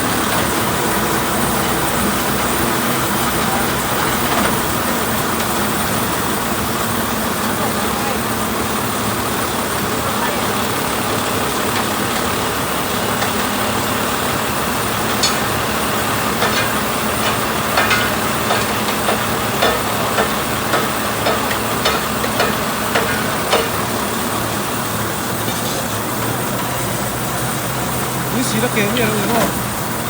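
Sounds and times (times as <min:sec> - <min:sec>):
vehicle running: 0:00.0 - 0:30.0
sharp clicks or knocks: 0:15.1 - 0:15.6, 0:16.4 - 0:23.8.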